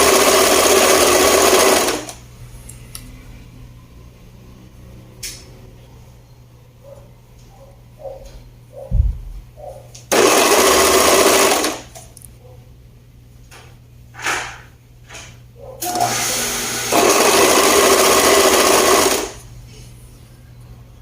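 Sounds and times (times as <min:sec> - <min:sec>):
overlock sewing machine stitching: 0:00.0 - 0:02.2, 0:10.1 - 0:11.9, 0:15.8 - 0:19.4
low thump: 0:08.9 - 0:09.3.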